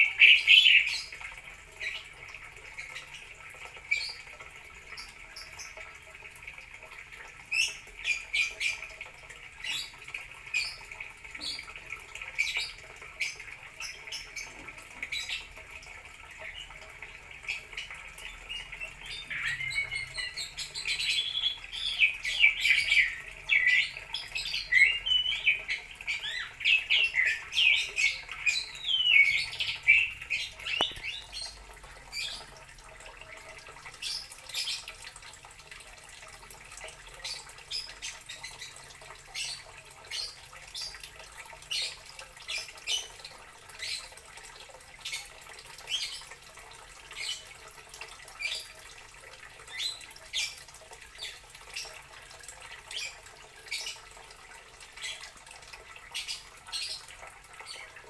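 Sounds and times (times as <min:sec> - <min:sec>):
bird chirping and squawking: 0:00.0 - 0:01.2, 0:17.5 - 0:32.5, 0:37.2 - 0:41.0, 0:56.1 - 0:58.0.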